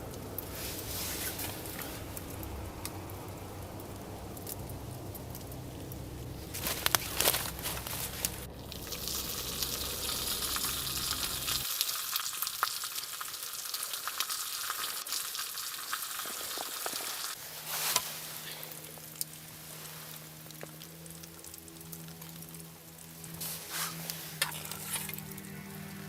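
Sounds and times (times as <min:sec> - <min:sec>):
low rumble: 0:00.0 - 0:11.7
food sizzling in a pan: 0:08.7 - 0:25.3.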